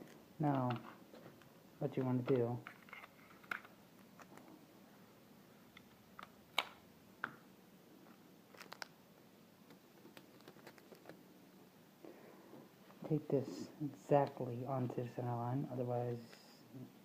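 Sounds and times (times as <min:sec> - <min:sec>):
paper crinkling: 0:08.5 - 0:09.0, 0:09.7 - 0:11.2.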